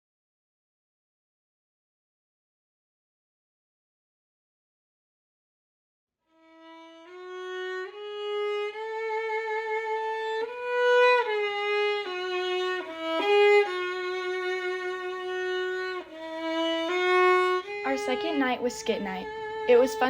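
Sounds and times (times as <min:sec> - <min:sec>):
solo violin melody: 0:06.3 - 0:20.0.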